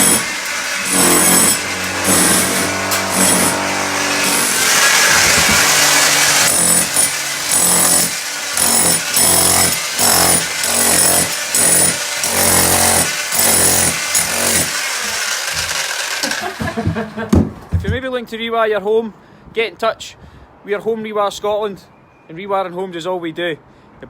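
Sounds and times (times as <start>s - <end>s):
electric power tool running: 0.0s - 17.1s.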